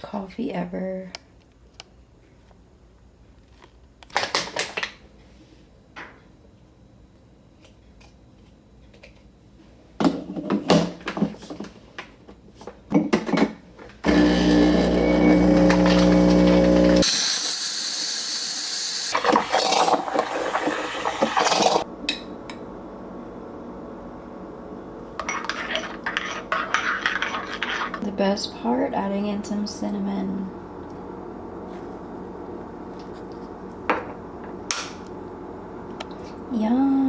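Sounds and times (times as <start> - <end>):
coffee machine pump buzz: 14.0 - 21.8.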